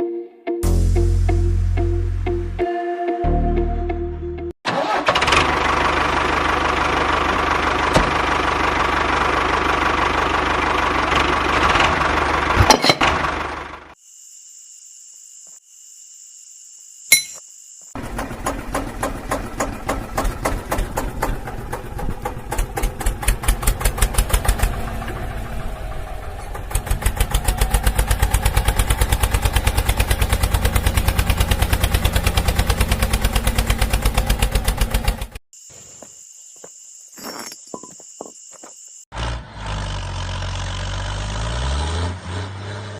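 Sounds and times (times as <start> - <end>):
small diesel engine chugging: 4.8 - 14.0, 18.0 - 35.4.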